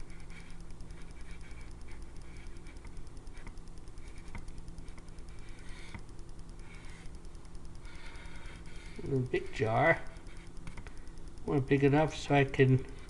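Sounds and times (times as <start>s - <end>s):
pencil scratching on paper: 0.0s - 7.2s, 7.8s - 10.7s
low steady hum: 0.0s - 13.0s.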